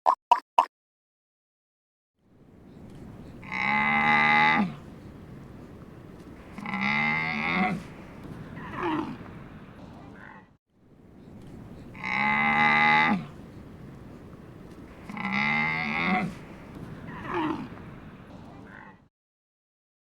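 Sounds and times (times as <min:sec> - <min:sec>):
cow mooing: 0:03.4 - 0:04.8, 0:06.5 - 0:08.0, 0:08.6 - 0:09.3, 0:12.0 - 0:13.4, 0:15.0 - 0:17.8.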